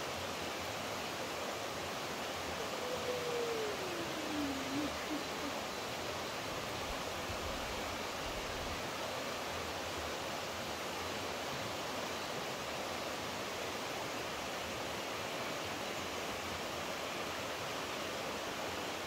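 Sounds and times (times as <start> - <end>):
water rushing: 0.0 - 10.0.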